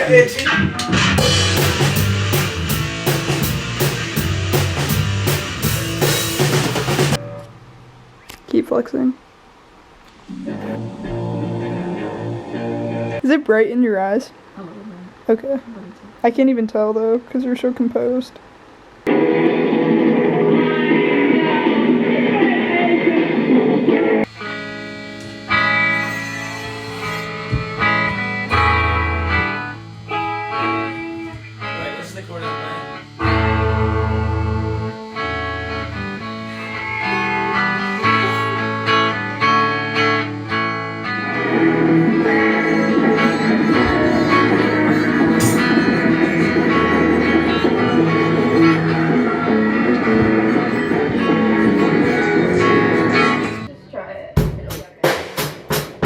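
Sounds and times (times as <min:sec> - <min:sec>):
fast drum beat: 0:00.0 - 0:07.2
bass line: 0:00.0 - 0:07.6, 0:10.3 - 0:13.2, 0:33.1 - 0:53.7
rock music: 0:00.0 - 0:07.6, 0:10.3 - 0:13.2, 0:19.1 - 0:53.7
dense mix of sound: 0:00.0 - 0:08.2
guitar: 0:00.0 - 0:08.8, 0:10.0 - 0:13.6, 0:19.0 - 0:54.6.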